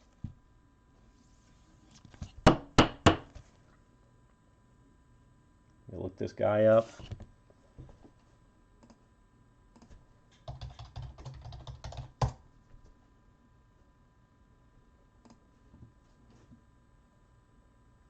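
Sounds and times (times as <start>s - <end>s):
typing on computer keyboard: 9.8s - 12.4s.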